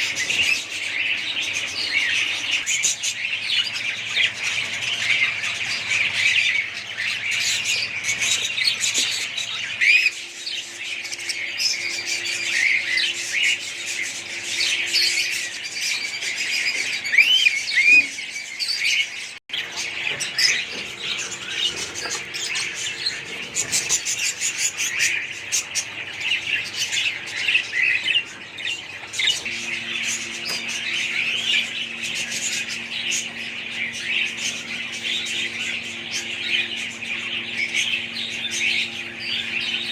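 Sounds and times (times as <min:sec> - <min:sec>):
parrots chattering: 0:00.0 - 0:39.9.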